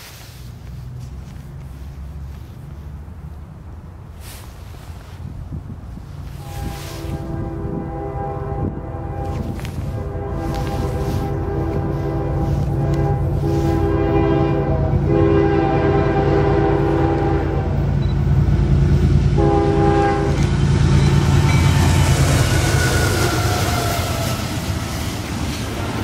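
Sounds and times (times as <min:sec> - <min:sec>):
diesel engine drone: 0:00.0 - 0:05.2, 0:05.8 - 0:26.0
train wheels rumbling on rail: 0:00.0 - 0:26.0
locomotive air horn blasts: 0:06.3 - 0:18.0, 0:19.3 - 0:24.8.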